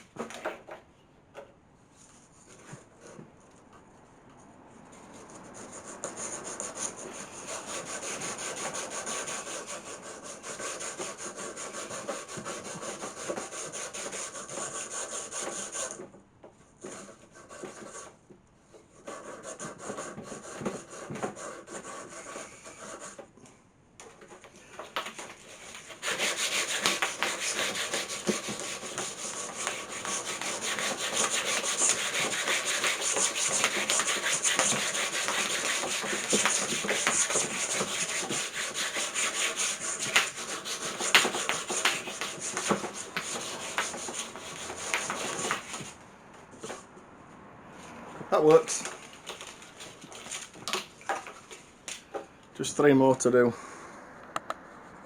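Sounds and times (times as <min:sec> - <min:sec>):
sandpaper rubbing wood: 0:05.4 - 0:15.9, 0:24.8 - 0:46.0.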